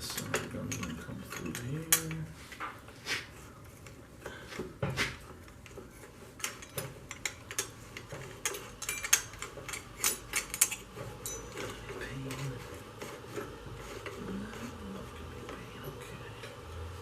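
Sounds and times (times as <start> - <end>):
metal tools clinking: 0.0 - 2.2, 6.4 - 12.6.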